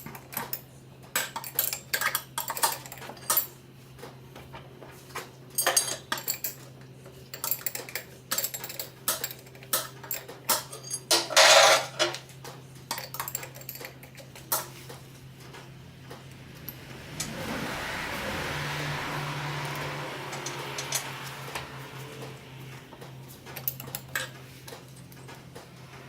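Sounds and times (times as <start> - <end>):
light metallic clinks and rattles: 5.6 - 6.7, 7.3 - 12.2, 12.9 - 15.0, 19.6 - 21.4, 23.3 - 25.4
steady low hum: 12.6 - 26.0.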